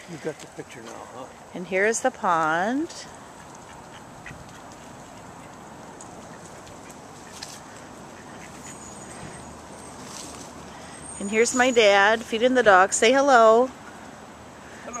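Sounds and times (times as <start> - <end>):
ducks quacking faintly: 3.0 - 9.5.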